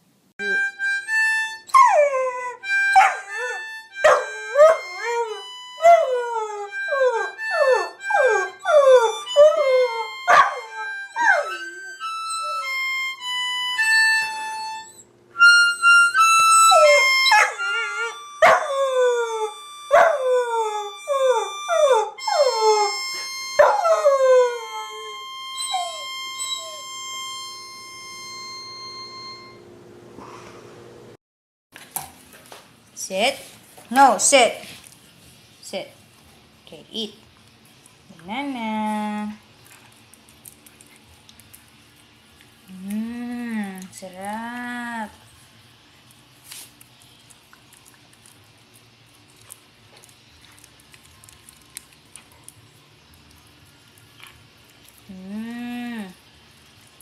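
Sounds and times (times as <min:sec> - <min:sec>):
puppy howling: 0:01.7 - 0:13.1, 0:16.2 - 0:27.5.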